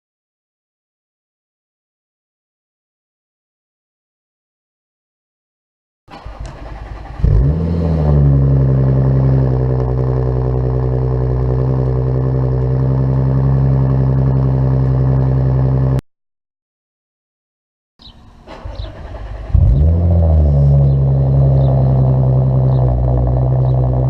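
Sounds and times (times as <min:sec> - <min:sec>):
car engine starting and idling: 0:06.1 - 0:16.0, 0:18.4 - 0:24.0.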